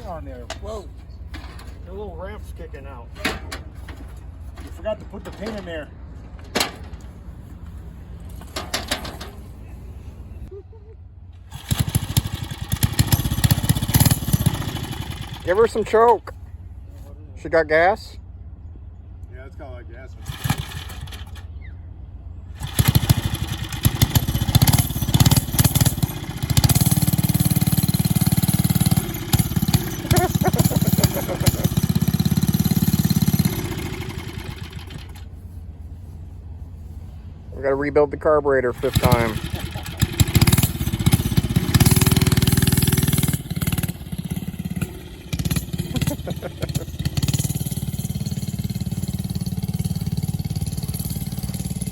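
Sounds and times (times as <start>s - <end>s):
small engine running: 11.4s - 16.0s, 20.2s - 21.6s, 22.5s - 35.3s, 38.7s - 51.9s.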